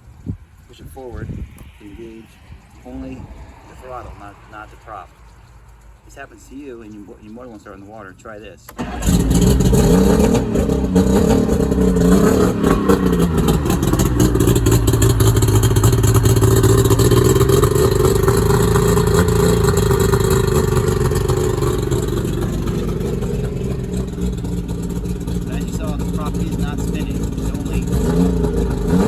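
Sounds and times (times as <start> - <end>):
outboard boat motor revving: 8.8 - 29.0.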